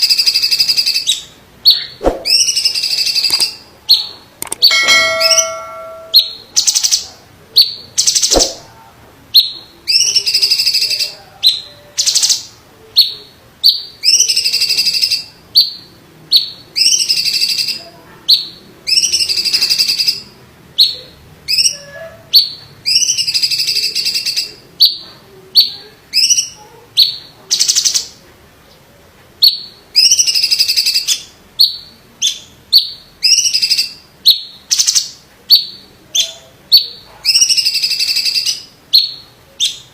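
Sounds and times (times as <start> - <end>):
bird singing harsh buzzy phrases: 0.0 - 7.0.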